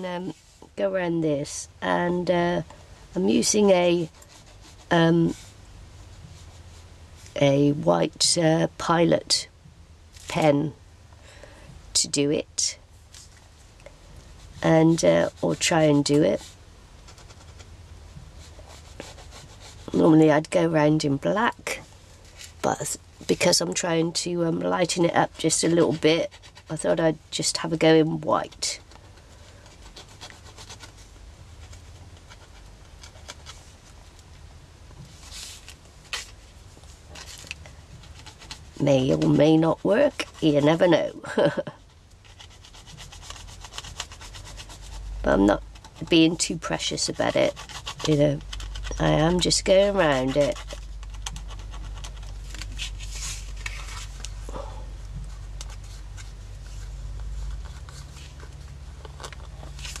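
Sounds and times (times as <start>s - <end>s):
low steady hum: 0.0s - 60.0s
pen scratching on paper: 18.4s - 20.8s, 29.7s - 31.0s, 38.0s - 41.2s, 42.3s - 53.0s.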